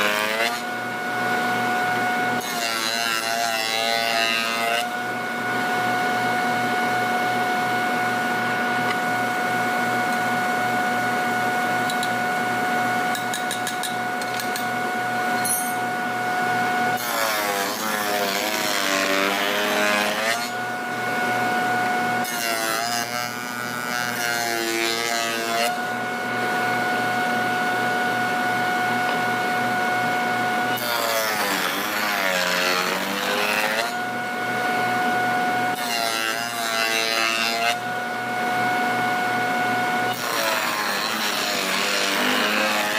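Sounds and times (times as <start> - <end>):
power tool cutting wood: 0.0 - 0.7, 2.4 - 5.0, 16.9 - 20.6, 21.7 - 26.0, 30.7 - 34.2, 35.7 - 37.9, 40.1 - 42.9.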